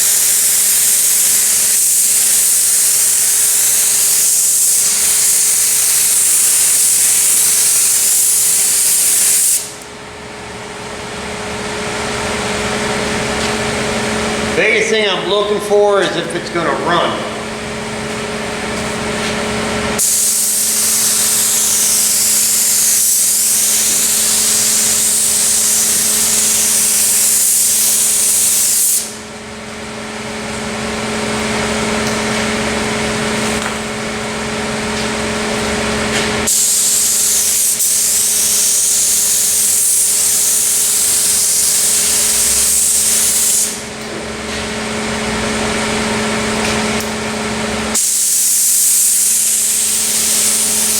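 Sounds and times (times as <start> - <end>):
paint spray gun hissing: 0.0 - 9.8, 20.0 - 29.2, 36.4 - 43.8, 47.9 - 50.9
steady low hum: 9.7 - 20.0.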